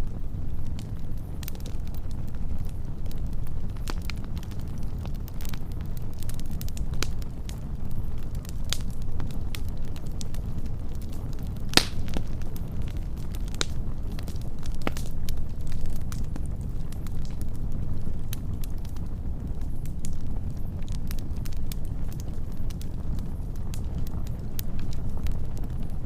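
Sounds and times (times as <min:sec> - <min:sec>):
wood fire crackling: 0:00.0 - 0:26.0
loud fire pop: 0:11.7 - 0:12.2.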